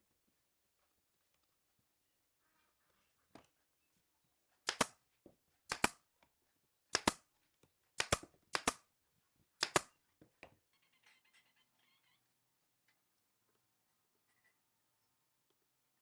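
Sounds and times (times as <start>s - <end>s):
fastening tool sharp double cracks: 4.7s - 4.9s, 5.7s - 6.0s, 6.9s - 7.2s, 8.0s - 8.8s, 9.6s - 9.9s.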